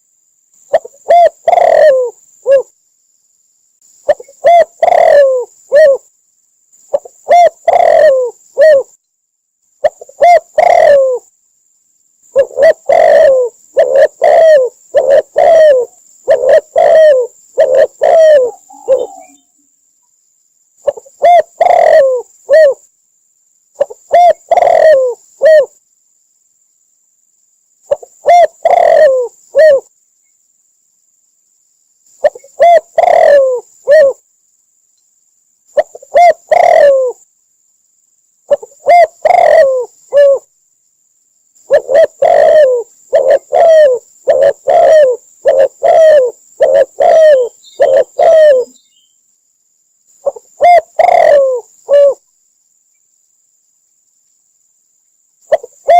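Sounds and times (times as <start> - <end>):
dove cooing: 0.7 - 2.7, 4.0 - 6.1, 6.9 - 9.0, 9.8 - 11.3, 12.3 - 19.6, 20.8 - 22.8, 23.8 - 25.8, 27.9 - 29.9, 32.2 - 34.2, 35.8 - 37.2, 38.5 - 40.5, 41.6 - 48.8, 50.2 - 52.2, 55.5 - 55.9.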